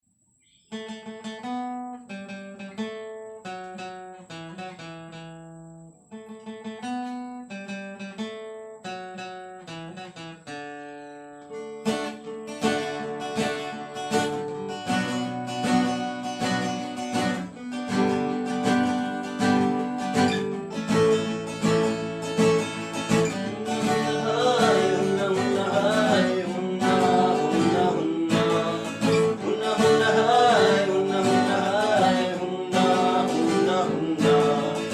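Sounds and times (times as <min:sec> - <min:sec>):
acoustic guitar picking: 0:00.6 - 0:34.9
fuller musical accompaniment: 0:11.9 - 0:34.9.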